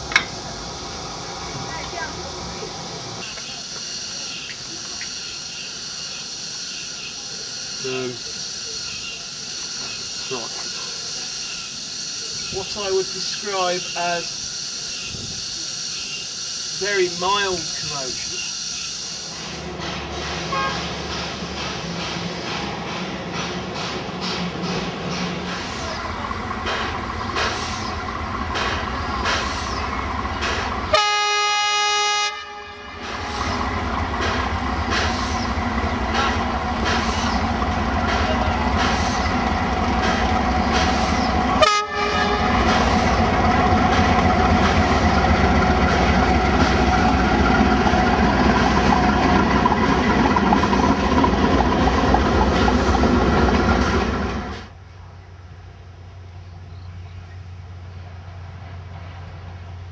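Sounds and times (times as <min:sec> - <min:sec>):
rhythmic locomotive beats: 0:00.0 - 0:54.7
diesel locomotive running: 0:00.0 - 0:59.9
train horn: 0:20.5 - 0:20.9, 0:30.9 - 0:33.3, 0:41.6 - 0:42.9.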